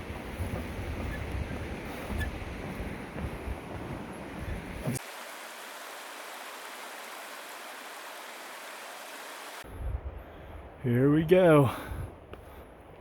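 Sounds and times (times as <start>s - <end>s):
wind buffeting microphone: 0.0s - 5.0s, 9.6s - 10.8s.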